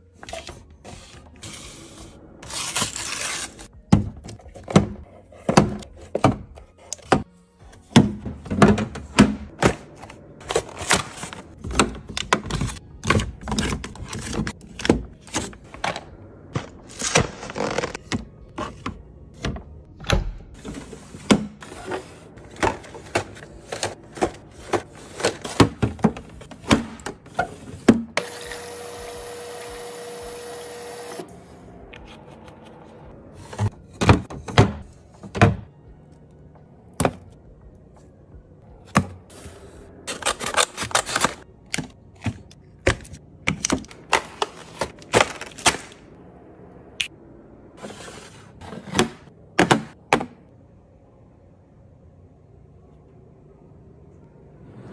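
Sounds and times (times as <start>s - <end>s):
plastic packages clicking and knocking: 40.1s - 46.0s.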